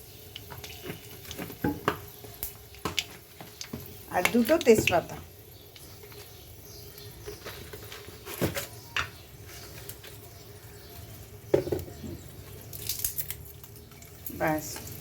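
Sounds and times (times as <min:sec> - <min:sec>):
spices sizzling in hot oil: 0:00.0 - 0:15.0.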